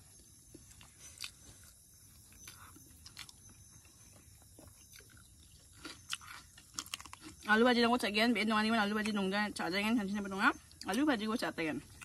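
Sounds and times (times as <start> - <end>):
chewing and mouth clicks: 0.2 - 7.5.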